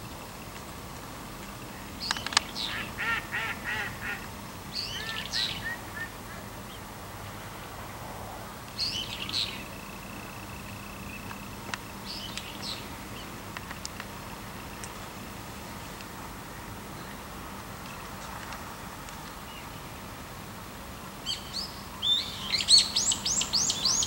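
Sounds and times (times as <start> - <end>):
bird calls: 1.5 - 6.9, 21.2 - 24.0.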